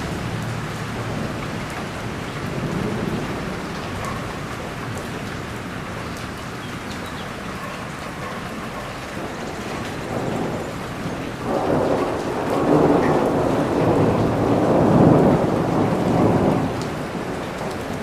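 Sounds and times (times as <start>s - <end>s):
heavy rain: 0.0s - 18.0s
thunder rolling: 9.2s - 18.0s.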